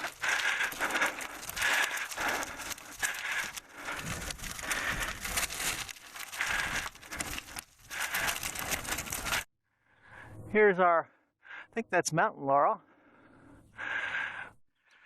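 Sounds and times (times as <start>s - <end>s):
bicycle tyres crunching on gravel: 0.0s - 9.5s.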